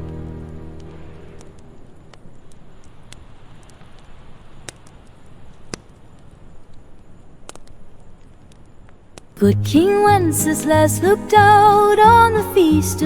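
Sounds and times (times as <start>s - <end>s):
song music: 9.4s - 13.0s.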